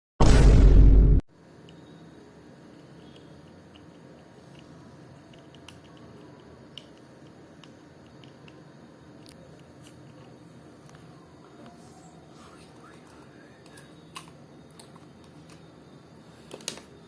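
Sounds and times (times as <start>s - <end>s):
faint clicks and ticks: 2.7s - 11.0s.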